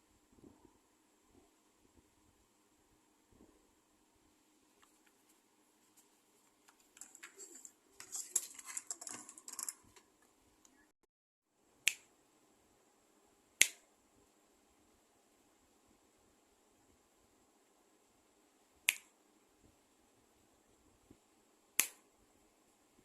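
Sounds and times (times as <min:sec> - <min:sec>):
plastic parts clicking and scraping: 0:06.6 - 0:10.2.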